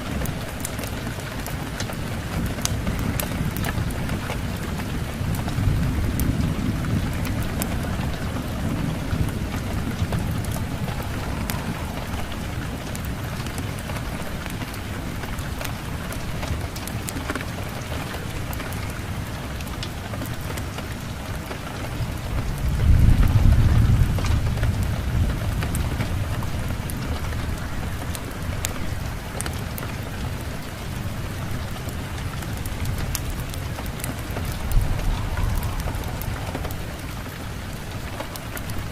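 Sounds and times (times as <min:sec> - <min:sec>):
steady rain: 0:00.0 - 0:38.9
deep low rumble: 0:05.5 - 0:14.4, 0:33.3 - 0:38.5.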